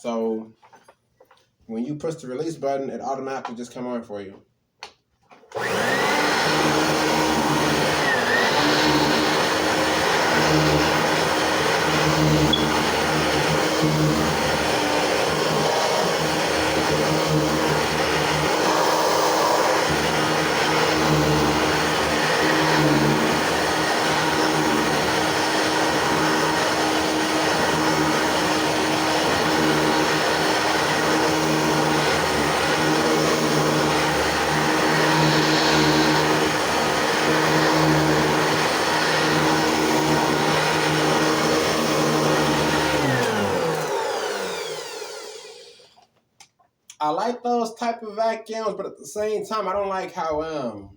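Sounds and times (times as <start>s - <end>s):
vacuum cleaner motor whining: 5.5s - 46.1s.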